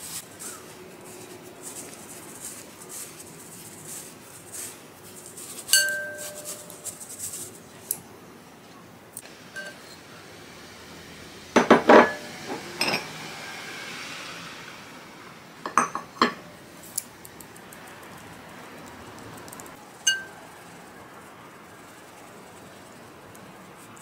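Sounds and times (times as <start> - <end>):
hiss of sifting powder: 0.0 - 7.8, 9.3 - 15.6
sieve and bowls clinking on glass: 5.7 - 6.9, 9.6 - 10.0, 11.6 - 13.1, 15.7 - 16.5, 20.0 - 20.4.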